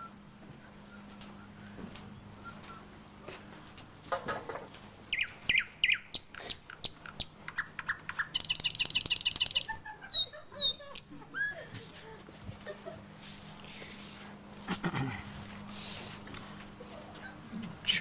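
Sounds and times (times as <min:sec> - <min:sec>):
bird chirps and whistles: 0:05.1 - 0:06.2, 0:07.6 - 0:10.8
bird trill: 0:05.1 - 0:11.6.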